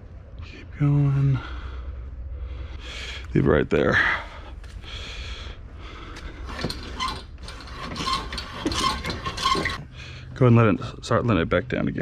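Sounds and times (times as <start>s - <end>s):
metal clinking and ratcheting: 6.5s - 9.8s.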